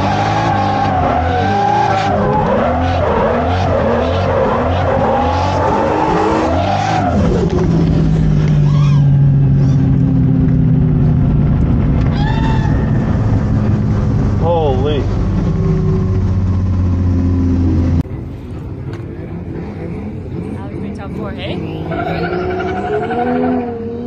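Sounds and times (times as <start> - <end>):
tires squealing: 0.0 - 7.8, 8.4 - 9.9, 12.0 - 13.7, 19.2 - 24.0
car engine revving: 0.0 - 24.0.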